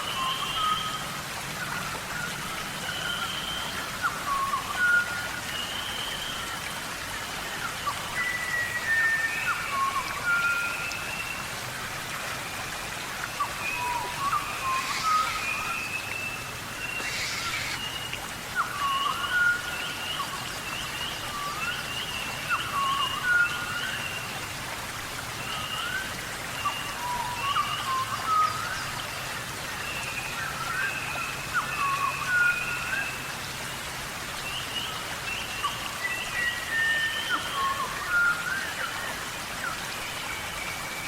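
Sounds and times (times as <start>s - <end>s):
steady hiss: 13.4s - 18.8s
bird chirps sweeping up: 14.2s - 16.0s, 16.9s - 18.0s.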